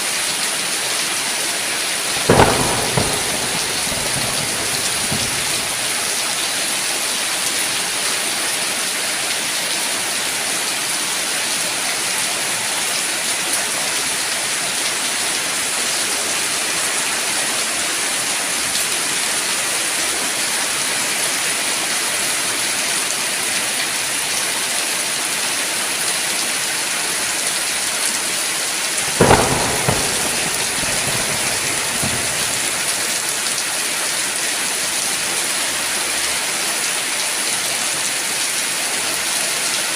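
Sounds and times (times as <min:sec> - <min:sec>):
steady rainfall: 0:00.0 - 0:39.9
sharp crack: 0:02.1 - 0:06.4, 0:29.0 - 0:33.6.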